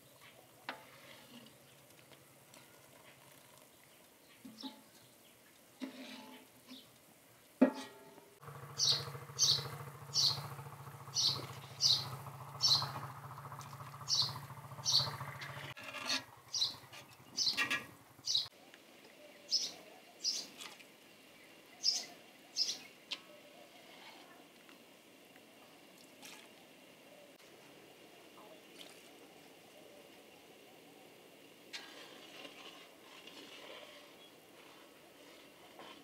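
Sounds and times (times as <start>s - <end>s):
low steady hum: 7.9s - 20.2s
small bird chirping: 8.7s - 13.1s, 14.0s - 15.7s, 16.5s - 18.5s, 21.8s - 22.9s.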